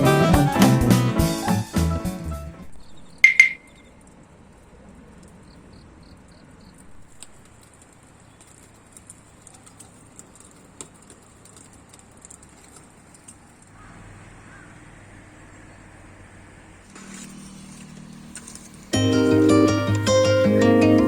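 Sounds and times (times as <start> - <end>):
high chirps: 3.1 - 3.9
wood fire crackling: 6.9 - 13.9.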